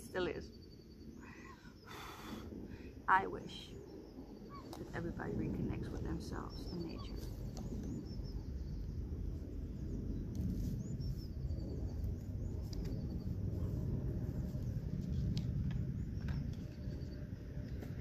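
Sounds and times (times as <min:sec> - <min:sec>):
low background rumble: 0:00.0 - 0:18.0
bird chirps: 0:06.3 - 0:09.0.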